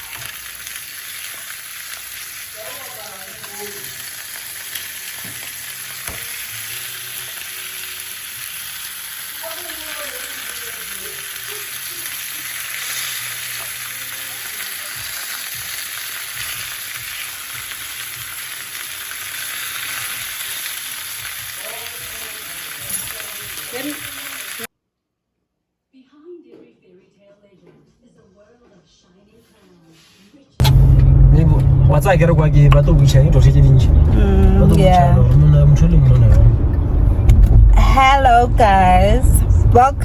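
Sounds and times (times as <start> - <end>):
meat sizzling in a frying pan: 0.0 - 24.7.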